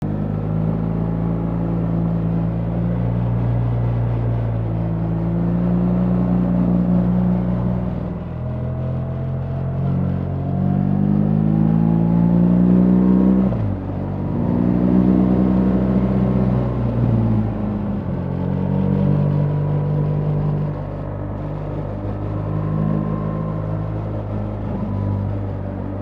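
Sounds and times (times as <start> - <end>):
motorcycle engine accelerating hard: 0.0 - 26.0.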